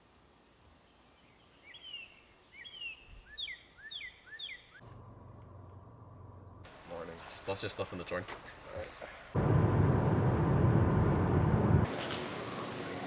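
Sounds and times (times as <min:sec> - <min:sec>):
bird chirping: 0:00.9 - 0:04.8
steady low hum: 0:09.4 - 0:11.9.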